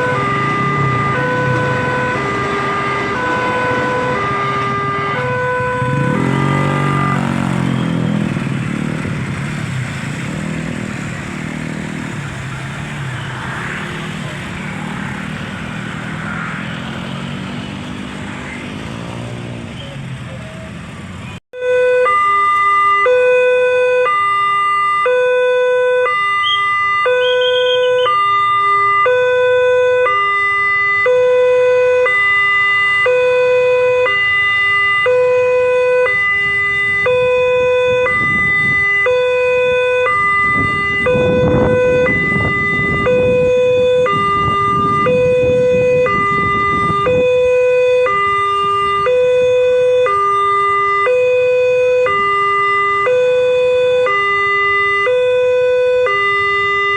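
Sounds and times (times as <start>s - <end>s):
level crossing two-tone alarm: 21.6s - 56.9s.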